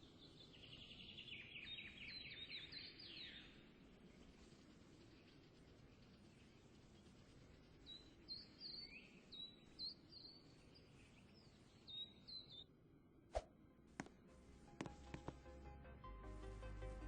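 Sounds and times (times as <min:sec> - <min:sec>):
faint bird chirping: 0:00.0 - 0:13.2
low background noise: 0:00.0 - 0:17.0.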